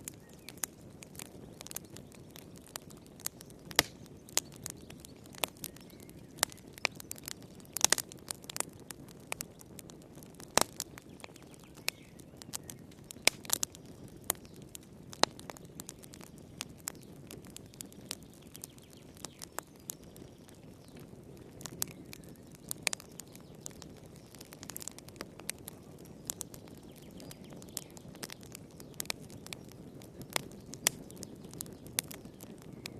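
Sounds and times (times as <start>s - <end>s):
wood fire crackling and popping: 0.0s - 32.9s.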